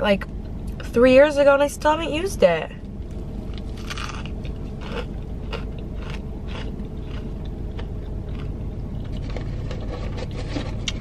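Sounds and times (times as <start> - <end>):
low steady hum: 0.0 - 11.0
person chewing crunchy food: 3.1 - 11.0.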